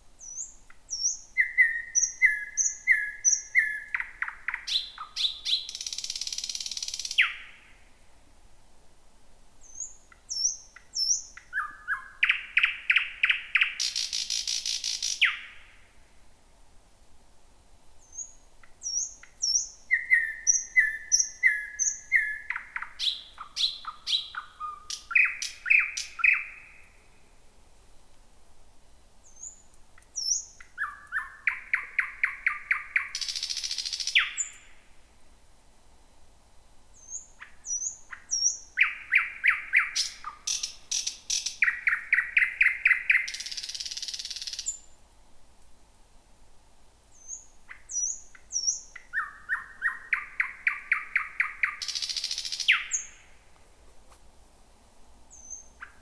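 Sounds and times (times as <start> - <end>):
nightingale singing: 0.2 - 7.8, 9.6 - 15.9, 18.0 - 27.3, 29.2 - 34.9, 36.9 - 45.0, 47.1 - 53.5, 55.3 - 56.0.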